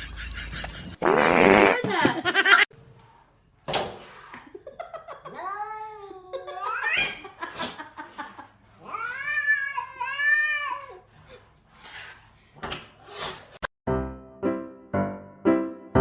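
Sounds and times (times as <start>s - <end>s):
cat yowling: 8.8s - 11.0s.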